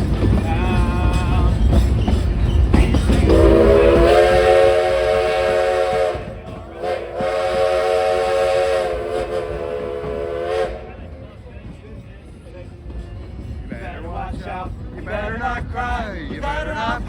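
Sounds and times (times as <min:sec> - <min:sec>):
steam hissing: 0:00.0 - 0:11.1
steam locomotive whistle: 0:02.8 - 0:11.2.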